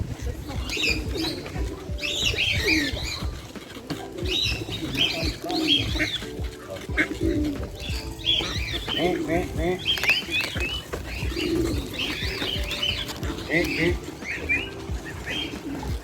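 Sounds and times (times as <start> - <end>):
pigeons cooing: 0.0 - 16.0
songbirds chirping and singing: 0.0 - 16.0.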